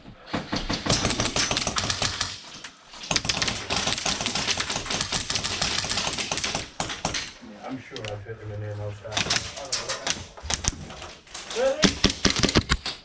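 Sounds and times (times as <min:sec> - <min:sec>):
airsoft gun full-auto firing: 0:00.7 - 0:07.3.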